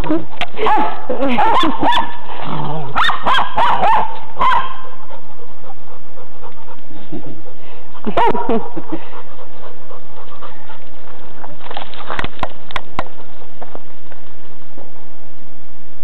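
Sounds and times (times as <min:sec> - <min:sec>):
dog panting: 0:04.2 - 0:14.0.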